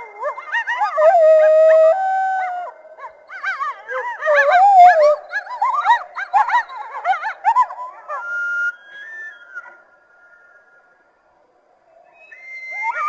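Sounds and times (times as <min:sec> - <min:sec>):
coyote howling: 0:00.0 - 0:08.6, 0:12.1 - 0:13.0
coyotes yipping: 0:00.0 - 0:09.9, 0:12.0 - 0:13.0.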